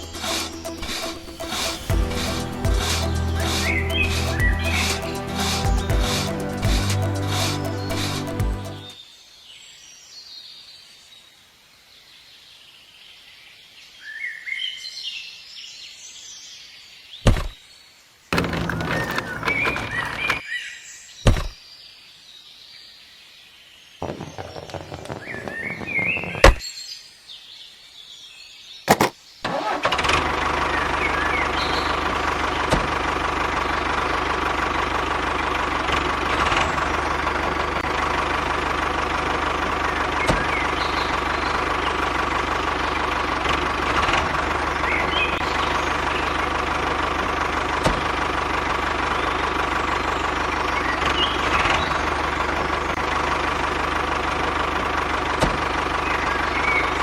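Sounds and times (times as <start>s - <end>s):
small tractor engine running: 0.0s - 9.0s, 28.9s - 57.0s
engine knocks and clicks: 18.4s - 20.4s, 28.9s - 57.0s.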